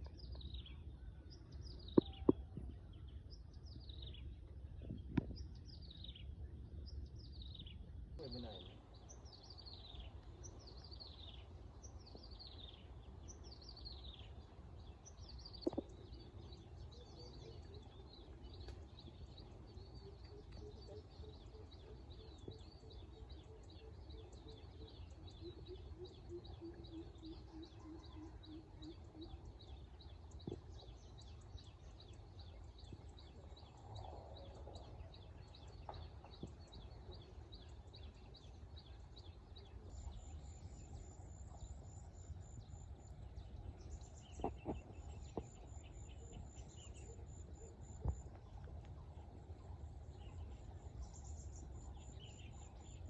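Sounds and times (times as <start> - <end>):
birds chirping and trilling: 0.0 - 53.0
lower repeated bird notes: 7.2 - 53.0
steady low rumble: 29.5 - 53.0.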